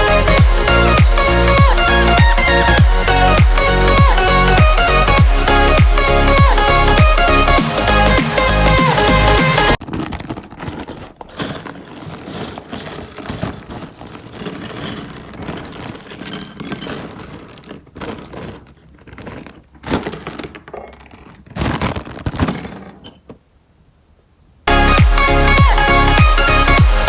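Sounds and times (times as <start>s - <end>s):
plastic toy bricks clattering: 9.8s - 23.4s.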